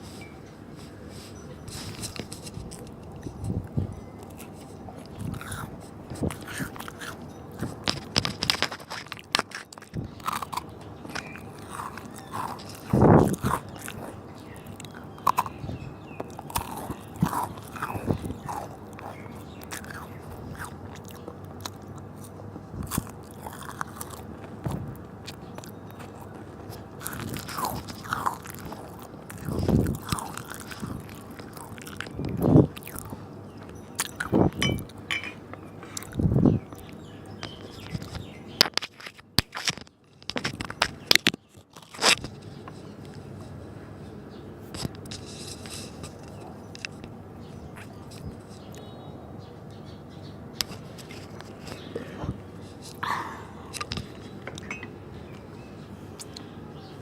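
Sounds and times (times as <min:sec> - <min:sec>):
crunching and chewing cookies: 0:00.0 - 0:57.0
mouth sounds: 0:51.7 - 0:54.7.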